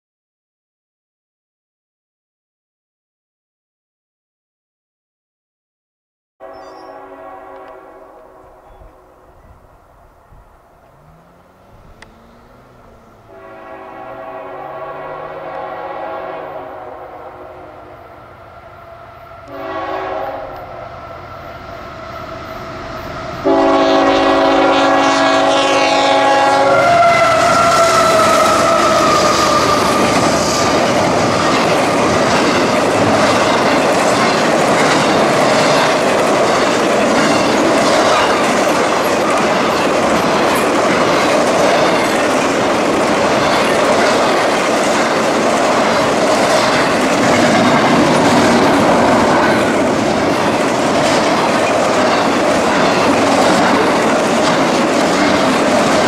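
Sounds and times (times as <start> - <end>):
locomotive air horn: 6.4 - 9.5, 10.9 - 18.1, 18.7 - 21.6, 23.4 - 31.5
train rumble: 6.5 - 56.0
train wheels clickety-clack: 26.7 - 56.0.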